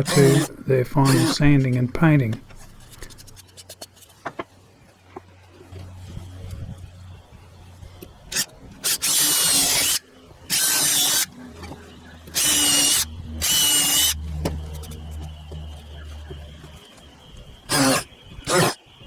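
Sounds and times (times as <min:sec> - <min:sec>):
power drill bursts in wood: 0:00.0 - 0:00.5, 0:08.3 - 0:11.3, 0:12.3 - 0:14.2, 0:17.7 - 0:18.8.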